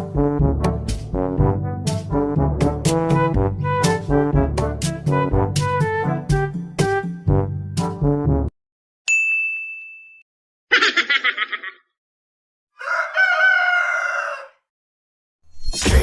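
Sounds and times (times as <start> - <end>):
music: 0.0 - 8.5
bright ding: 9.1 - 10.2
rooster crowing: 12.8 - 14.7.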